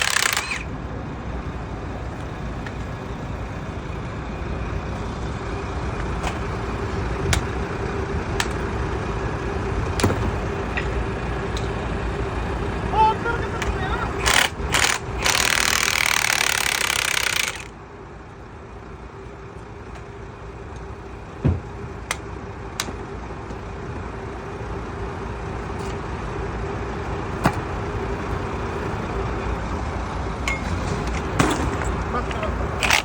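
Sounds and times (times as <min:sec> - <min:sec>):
metal parts knocking: 0:00.0 - 0:00.6, 0:32.7 - 0:33.0
machine hum: 0:00.0 - 0:33.0.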